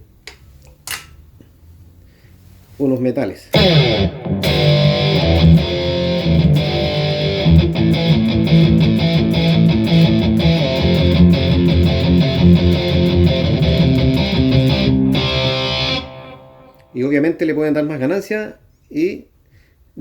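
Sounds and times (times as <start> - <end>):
distorted electric guitar riff: 3.5 - 17.1.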